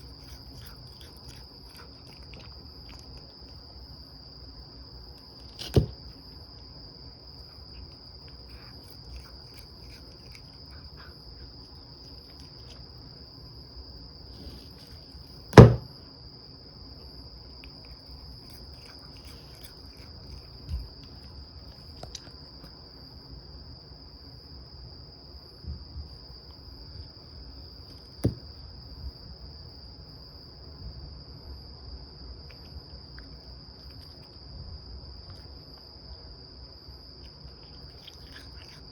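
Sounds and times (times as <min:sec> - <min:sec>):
crickets chirring: 0:00.0 - 0:38.9
knocks: 0:15.6 - 0:15.9.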